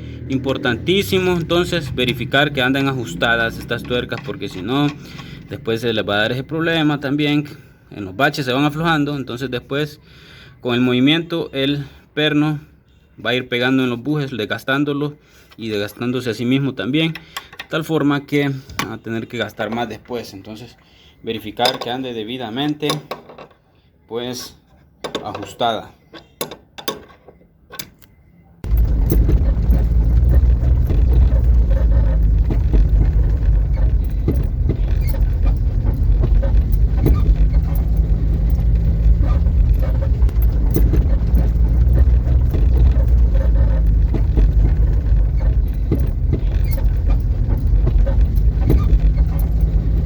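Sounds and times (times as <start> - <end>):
car road rumble: 0.0 - 5.7, 28.6 - 50.0
suspension knocks and rattles: 0.7 - 5.5, 28.6 - 50.0.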